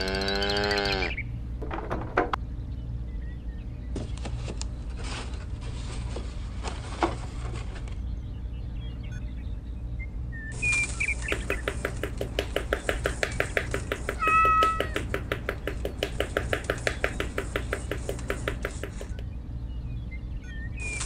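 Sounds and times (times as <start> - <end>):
bird-like chirps: 8.0 - 21.0
hammer tapping post into sand: 11.2 - 19.2.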